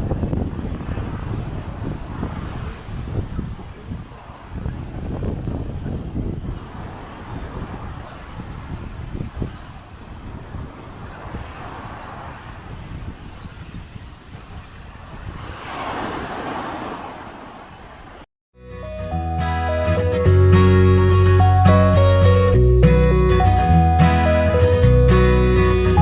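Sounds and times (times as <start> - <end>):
wind buffeting microphone: 0.0 - 18.2.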